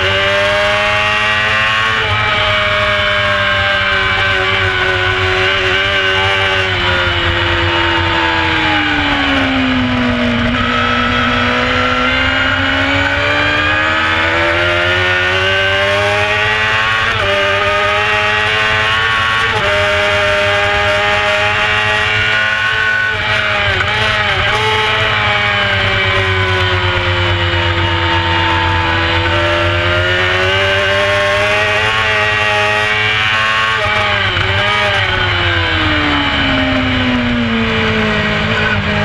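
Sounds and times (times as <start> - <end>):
gear changes: 0.0 - 39.0
motorcycle engine at high speed: 0.0 - 39.0.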